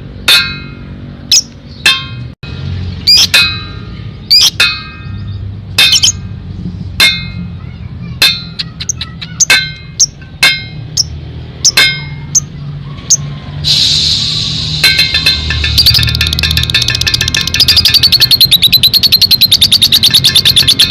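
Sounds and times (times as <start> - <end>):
lovebird chirping: 3.0 - 3.4, 4.2 - 6.2, 15.0 - 20.9.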